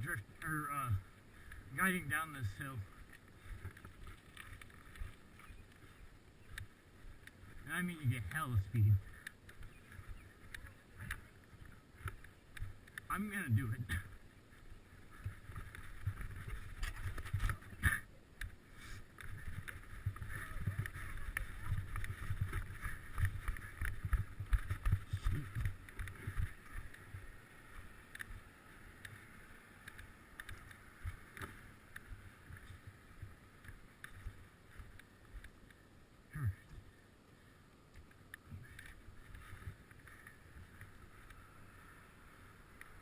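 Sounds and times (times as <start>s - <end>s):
bicycle tyre and road noise: 0.0s - 43.0s
wind buffeting microphone: 19.2s - 27.3s.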